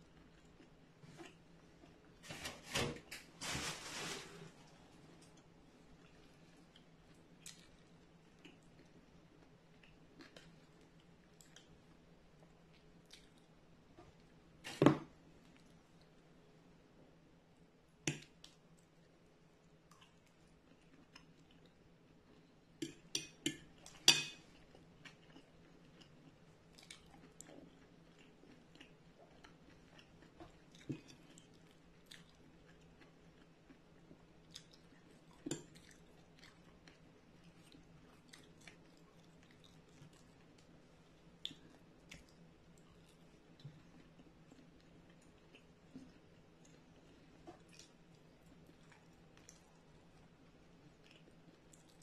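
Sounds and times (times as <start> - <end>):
person chewing: 24.6 - 40.6.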